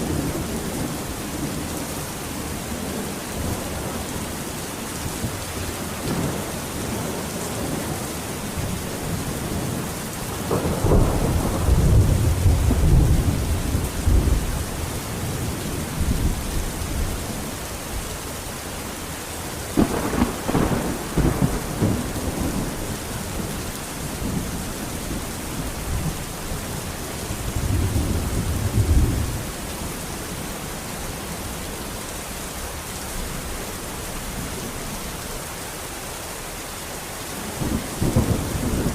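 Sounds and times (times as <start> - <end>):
steady rain: 0.0 - 38.9
thunder rumbling: 5.0 - 18.0, 19.7 - 29.9, 37.4 - 38.9.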